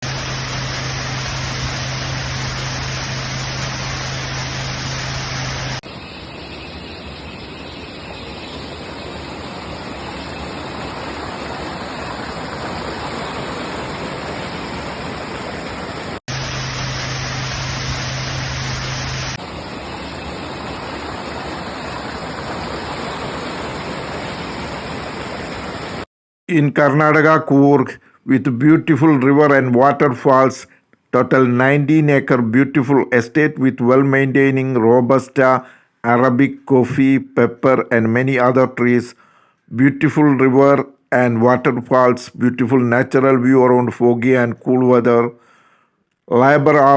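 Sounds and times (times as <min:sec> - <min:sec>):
steady low hum: 0:00.0 - 0:25.4.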